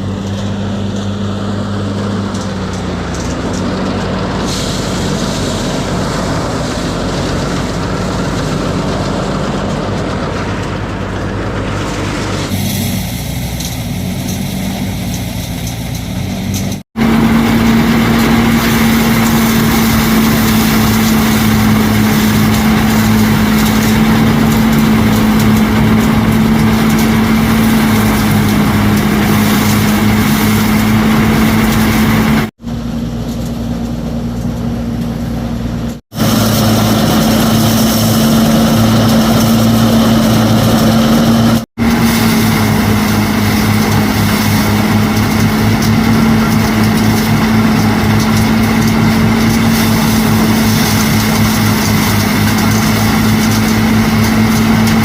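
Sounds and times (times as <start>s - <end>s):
small engine running: 17.0s - 55.0s.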